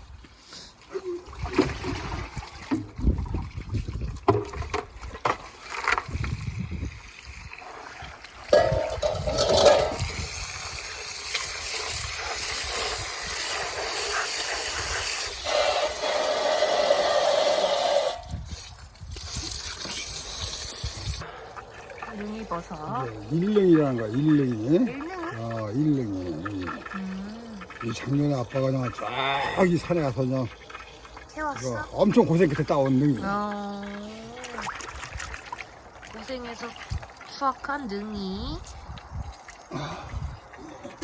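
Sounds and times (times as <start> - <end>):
water running from a tap: 6.1 - 21.2, 22.0 - 37.6
handling knocks and clatter: 8.6 - 10.1.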